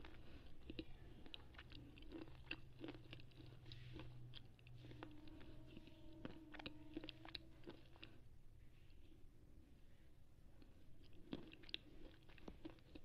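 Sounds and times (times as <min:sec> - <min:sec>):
pencil chewing crunches: 0:11.0 - 0:13.0.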